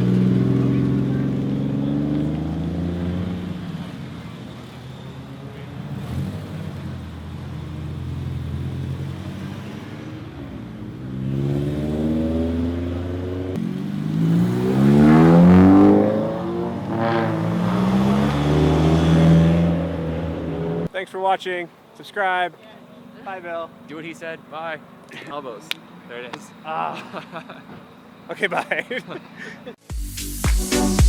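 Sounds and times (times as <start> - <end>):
car engine accelerating: 0.0 - 20.9.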